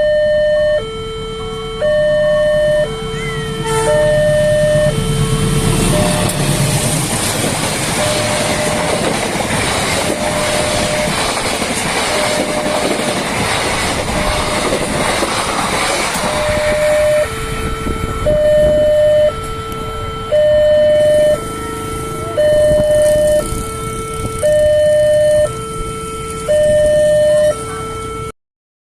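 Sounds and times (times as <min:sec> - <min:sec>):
two-tone level crossing alarm: 0:00.0 - 0:28.3
locomotive rushing past: 0:01.0 - 0:28.2
train wheels clattering over rails: 0:05.8 - 0:17.0.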